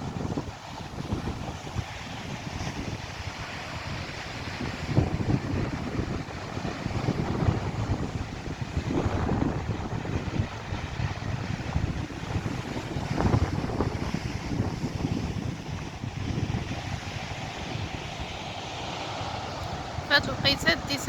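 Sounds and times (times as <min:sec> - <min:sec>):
sea waves rushing: 0:00.0 - 0:21.0
wind buffeting microphone: 0:00.0 - 0:21.0.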